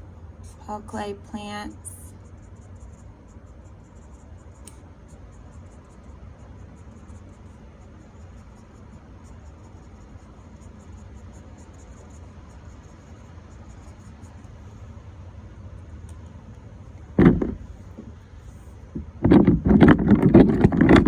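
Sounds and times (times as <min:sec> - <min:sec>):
low background rumble: 0:00.0 - 0:21.0
pen scratching on paper: 0:02.1 - 0:14.9.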